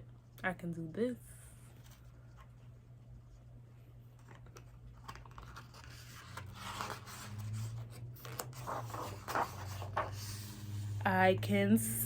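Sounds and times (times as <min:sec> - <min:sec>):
faint low hum: 0:00.0 - 0:12.0
rustling and scratching handling noise: 0:01.7 - 0:11.0.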